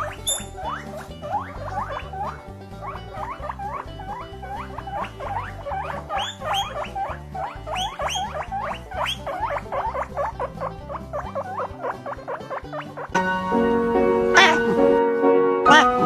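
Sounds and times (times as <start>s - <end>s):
small animal squealing: 0.0s - 13.2s, 14.3s - 14.7s.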